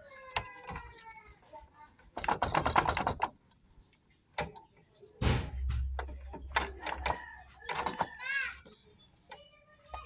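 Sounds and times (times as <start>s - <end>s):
knocks: 5.2s - 6.7s.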